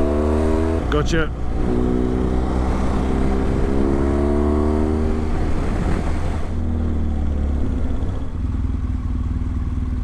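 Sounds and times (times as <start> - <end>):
motorcycle engine accelerating: 0.0 - 10.0
wind noise: 0.8 - 6.8.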